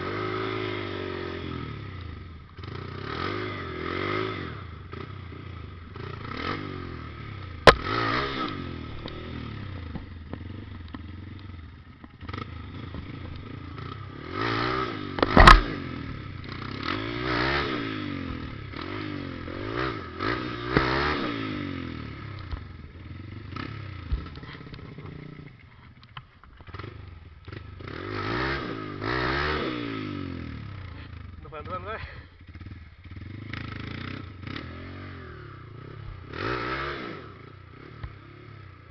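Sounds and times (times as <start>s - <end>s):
motorcycle engine revving: 0.0s - 38.9s
loud thump: 15.2s - 15.8s
sharp knock: 15.2s - 15.8s.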